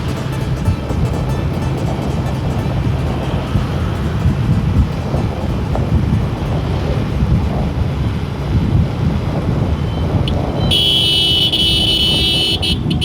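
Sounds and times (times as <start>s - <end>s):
motorcycle engine rumble: 0.0s - 13.0s
wind buffeting microphone: 0.0s - 13.0s
horn blast: 10.3s - 13.0s.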